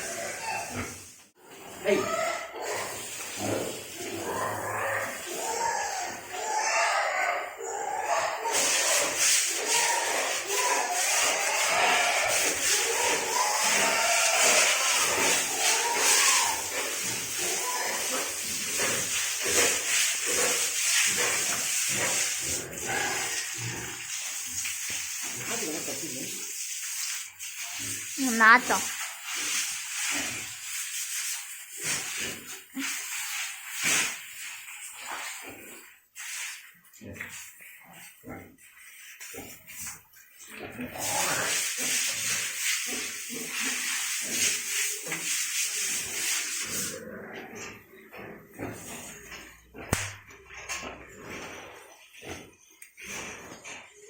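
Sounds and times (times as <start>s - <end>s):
spraying water hiss: 2.6s - 6.2s, 8.4s - 37.6s, 40.9s - 47.0s
scraping strokes: 8.6s - 25.6s.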